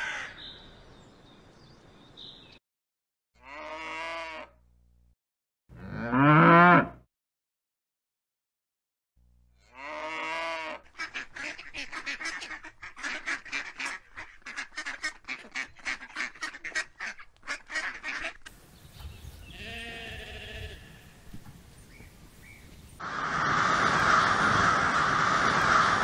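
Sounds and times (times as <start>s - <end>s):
sheep bleating: 3.4s - 4.6s, 9.6s - 10.8s, 19.5s - 21.2s
duck quacking: 9.8s - 18.5s.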